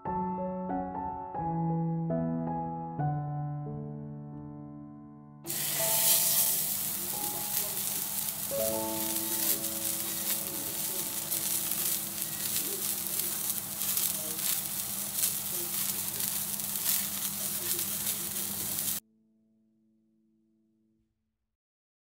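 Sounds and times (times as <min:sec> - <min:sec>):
fish sizzling in a frying pan: 0:05.5 - 0:19.0.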